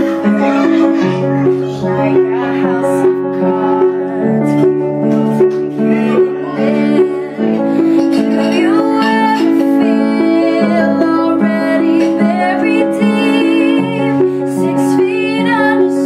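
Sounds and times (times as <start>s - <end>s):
piano playing repeated chords: 0.0s - 16.0s.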